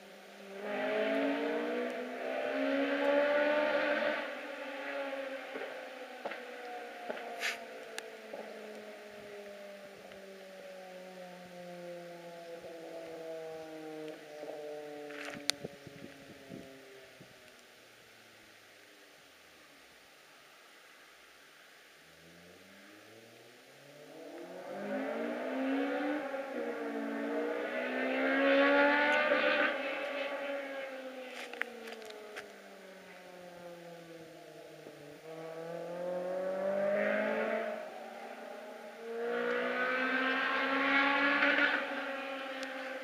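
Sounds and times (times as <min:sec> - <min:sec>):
car engine revving hard: 0:00.6 - 0:05.7, 0:23.9 - 0:32.0, 0:35.2 - 0:43.0.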